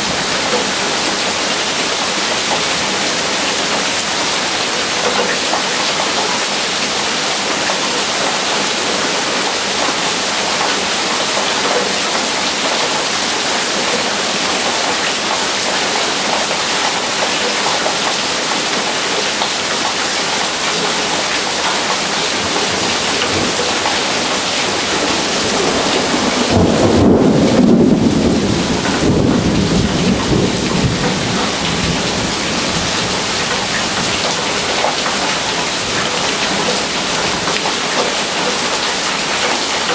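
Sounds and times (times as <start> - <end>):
heavy rain pouring: 0.0 - 39.9
thunder rumbling: 24.7 - 34.1.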